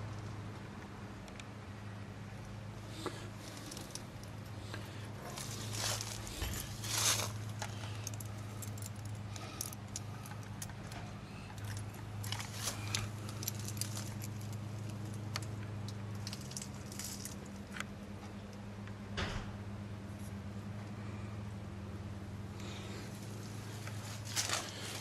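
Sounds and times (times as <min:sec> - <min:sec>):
steady low hum: 0:00.0 - 0:25.0
light clicks and rattles: 0:03.0 - 0:19.0.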